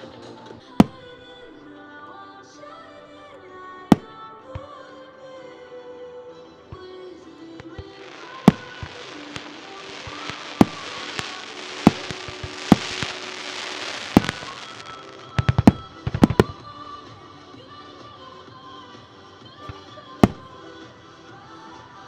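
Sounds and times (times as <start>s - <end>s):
music: 0.0s - 22.0s
fireworks bangs: 0.8s - 1.2s, 7.6s - 16.7s, 19.6s - 20.6s
fireworks crackling hiss: 7.6s - 18.1s, 19.6s - 22.0s.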